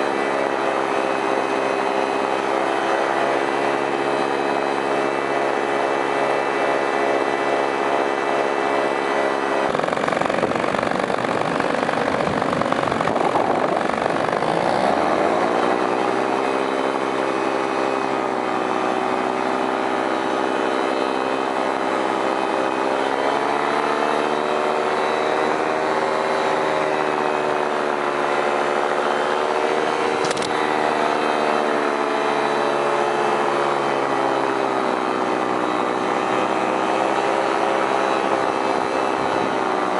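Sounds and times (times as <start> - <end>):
paramotor engine and propeller: 0.0 - 39.9
brief click: 30.2 - 30.5.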